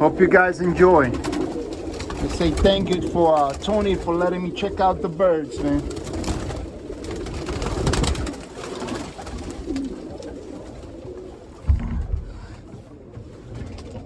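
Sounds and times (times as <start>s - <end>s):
pigeons cooing: 0.0s - 14.0s
rustling and clicking: 5.8s - 14.0s
low thump: 11.6s - 12.8s.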